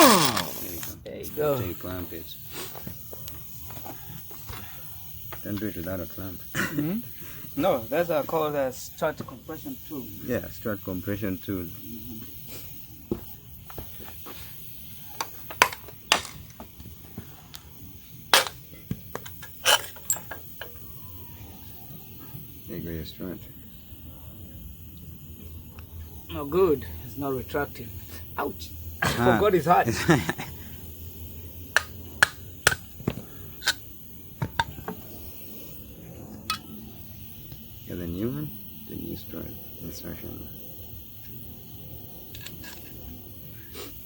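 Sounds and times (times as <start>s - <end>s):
metal parts clinking: 0.0s - 1.0s, 15.2s - 16.6s, 18.3s - 20.8s.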